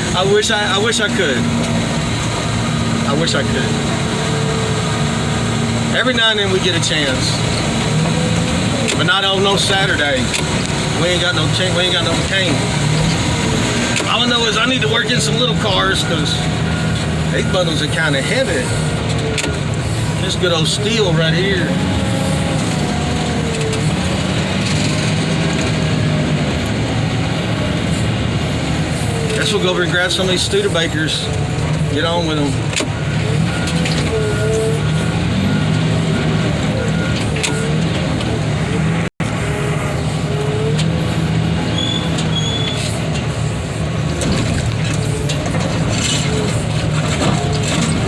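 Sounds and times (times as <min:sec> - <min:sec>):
heavy equipment engine running: 0:00.0 - 0:48.0
short high squeaks: 0:41.6 - 0:43.2.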